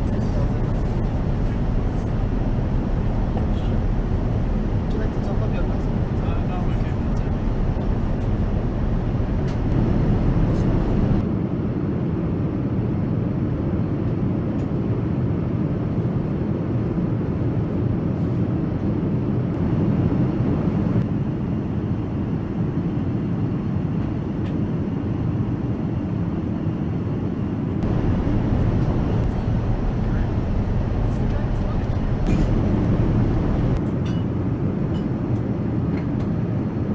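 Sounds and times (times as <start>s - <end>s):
airliner cabin rumble: 9.3s - 36.9s.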